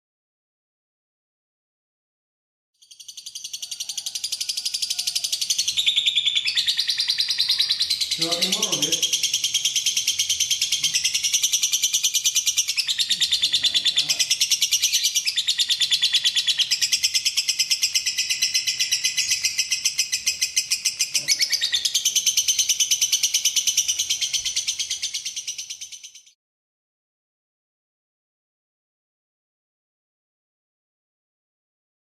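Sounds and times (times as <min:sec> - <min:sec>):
lovebird shrill chirps: 0:02.8 - 0:26.4.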